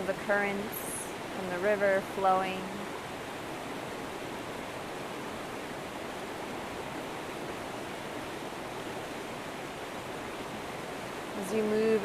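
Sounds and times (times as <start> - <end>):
river current flowing: 0.0 - 12.0.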